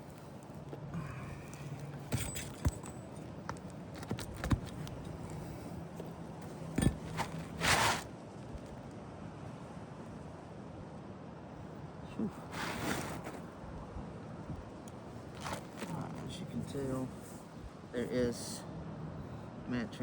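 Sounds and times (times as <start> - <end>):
roof shingles clicking and knocking: 0.7 - 5.6
shingle scraping rasp: 1.1 - 8.1, 12.4 - 13.4.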